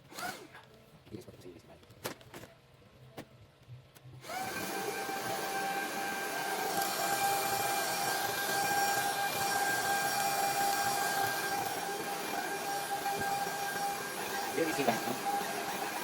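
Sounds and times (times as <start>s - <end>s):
vacuum motor whining: 4.2s - 16.0s.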